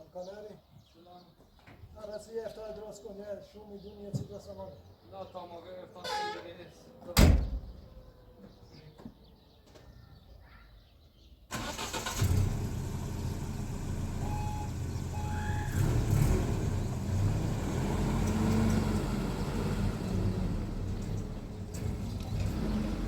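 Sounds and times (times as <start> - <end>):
car engine starting and idling: 11.5 - 23.0
short beeps: 14.2 - 15.4.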